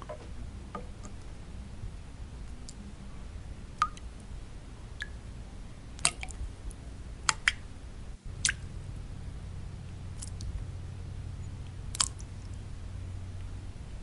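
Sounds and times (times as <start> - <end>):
low white-noise rumble: 0.0 - 14.0
water drops plinking: 3.8 - 4.0.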